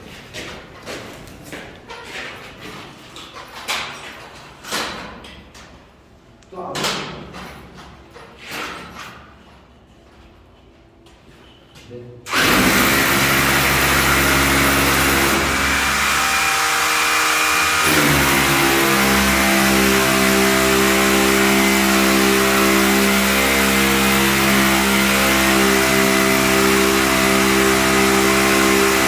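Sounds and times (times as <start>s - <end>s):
machine motor humming: 12.3s - 29.0s.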